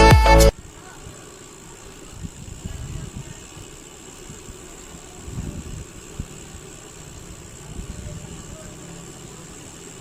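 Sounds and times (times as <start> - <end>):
wind buffeting microphone: 2.0 - 8.9.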